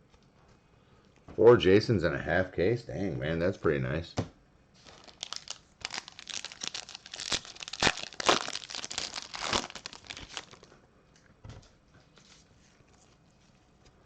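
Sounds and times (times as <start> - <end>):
foil wrapper tearing and crinkling: 4.8 - 10.7.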